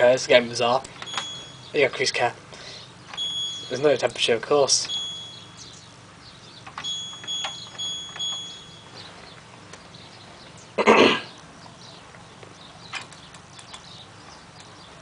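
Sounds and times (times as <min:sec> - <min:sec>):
washing machine beeping: 0:01.0 - 0:01.8, 0:03.1 - 0:04.0, 0:04.7 - 0:05.8, 0:06.6 - 0:09.4
person coughing: 0:10.8 - 0:11.3
light clicks: 0:12.1 - 0:14.8.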